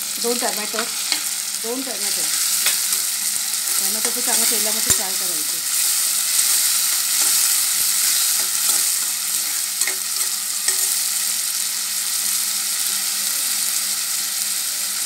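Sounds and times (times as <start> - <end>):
onion and tomato sizzling in oil: 0.0 - 15.0
steel spoon scraping metal pan: 2.4 - 11.1.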